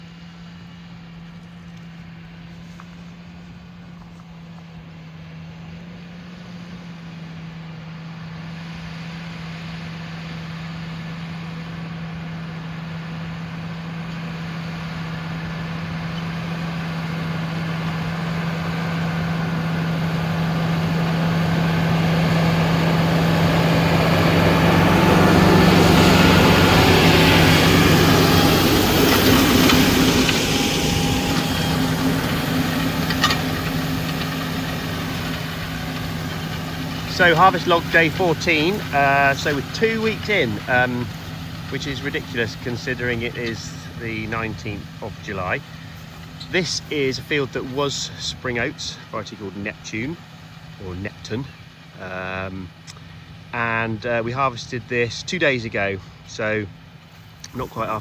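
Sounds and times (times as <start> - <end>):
tractor engine passing: 0.0 - 58.0.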